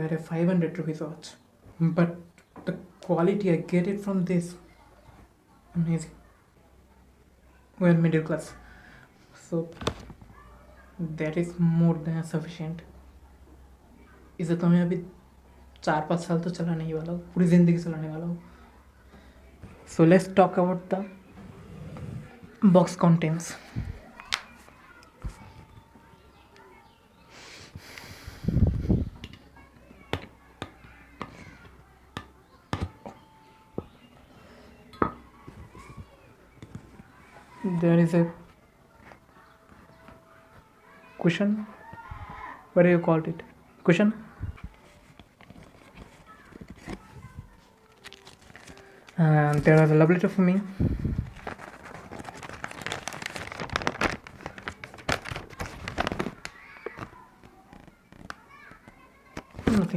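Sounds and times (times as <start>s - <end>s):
paper and packaging crinkling: 44.6s - 59.9s.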